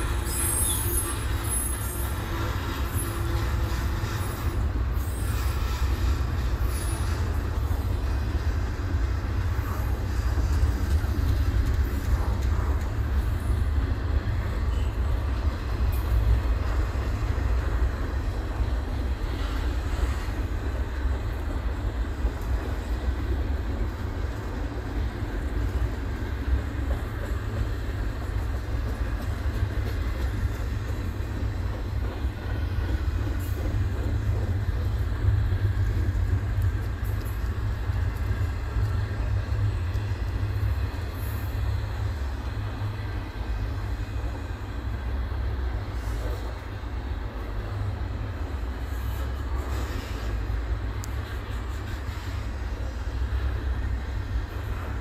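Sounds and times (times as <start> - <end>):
train cars rolling on rails: 0.0 - 55.0.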